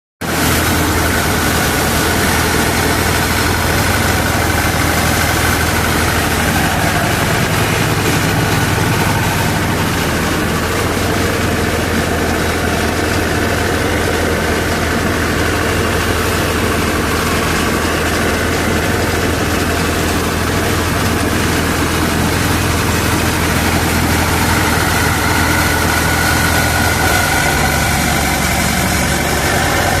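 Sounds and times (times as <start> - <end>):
tractor diesel engine running: 0.2 - 30.0.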